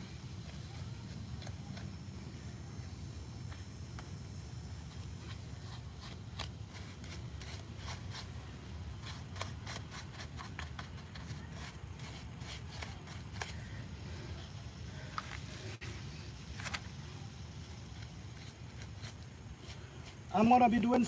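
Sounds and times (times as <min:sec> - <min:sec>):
paintbrush scratchy strokes: 0:04.6 - 0:16.3.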